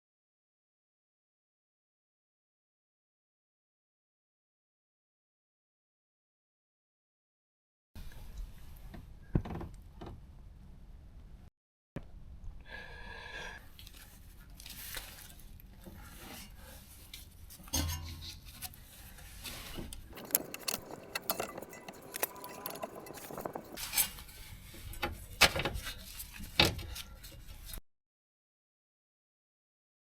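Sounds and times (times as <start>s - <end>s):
metal tools clinking and scraping: 20.1s - 24.4s.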